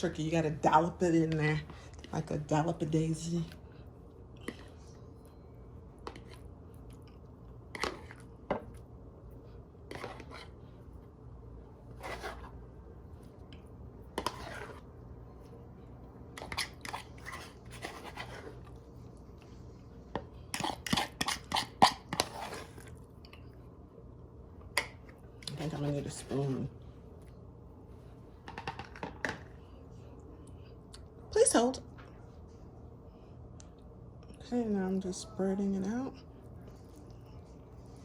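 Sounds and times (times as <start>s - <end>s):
utensil scraping and tapping container: 14.2s - 14.8s.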